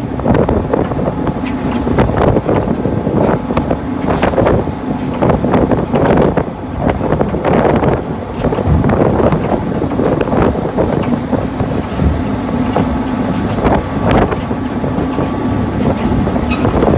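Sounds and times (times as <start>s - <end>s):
diesel locomotive engine running: 0.0s - 16.9s
wind on microphone: 0.0s - 16.9s
short hiss: 4.1s - 5.2s
knocks and rattles: 7.6s - 16.9s.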